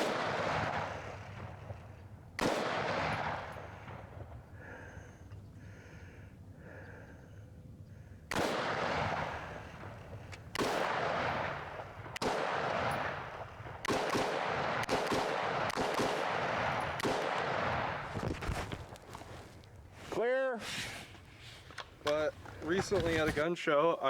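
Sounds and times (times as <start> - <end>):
rifle shots: 0.0 - 4.4, 8.3 - 18.2.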